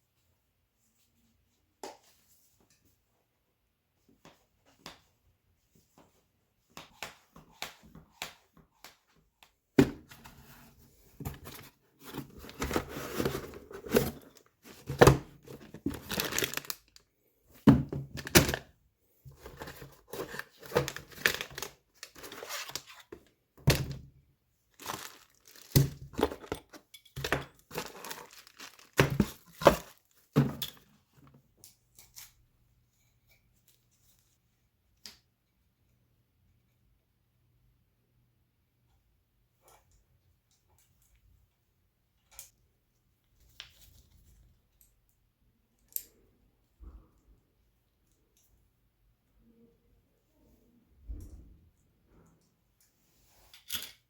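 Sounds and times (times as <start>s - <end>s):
crinkling and tearing: 11.5s - 17.1s, 24.8s - 30.2s.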